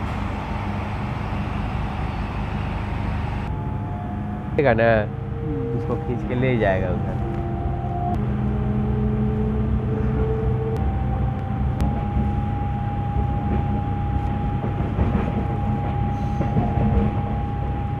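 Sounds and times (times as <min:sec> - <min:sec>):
train wheels rumbling on track: 0:00.0 - 0:03.5, 0:10.5 - 0:18.0.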